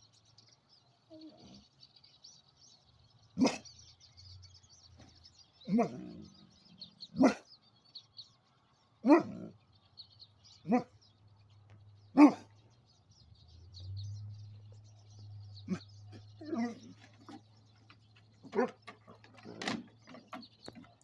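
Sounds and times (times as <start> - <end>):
small birds chirping: 0.0 - 21.0
dog barking: 3.4 - 3.8, 5.7 - 6.2, 7.1 - 7.5, 9.0 - 9.5, 10.6 - 11.0, 12.1 - 12.6, 18.4 - 18.8.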